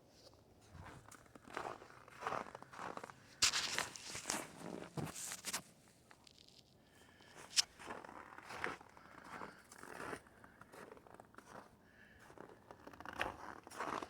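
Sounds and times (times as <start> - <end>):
faint scuffs and clicks: 2.2 - 8.7.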